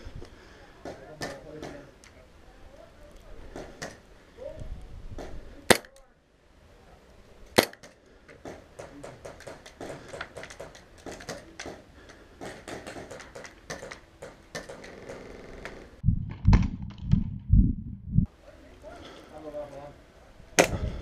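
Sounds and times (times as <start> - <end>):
airsoft pistol shots: 5.7 - 5.9, 7.6 - 7.9.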